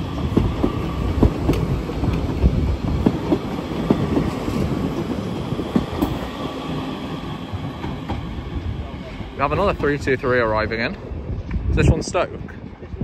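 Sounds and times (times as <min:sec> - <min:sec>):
wheels clicking over rail joints: 0:00.0 - 0:10.2
train rumble: 0:00.0 - 0:13.0.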